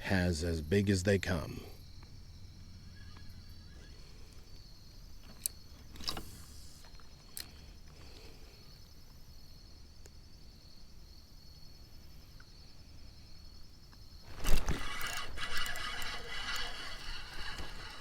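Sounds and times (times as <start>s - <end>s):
low outdoor rumble: 0.0s - 7.9s
insects chorus: 0.0s - 18.0s.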